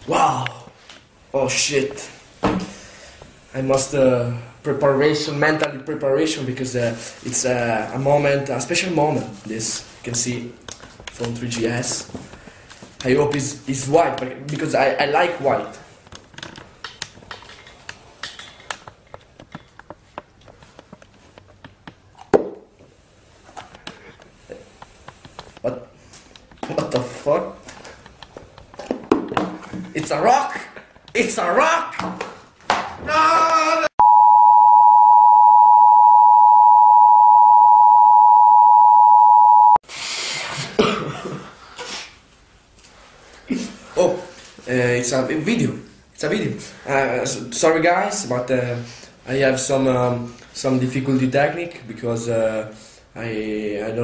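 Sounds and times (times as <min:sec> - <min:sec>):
two-tone electronic beep: 0:34.0 - 0:39.8.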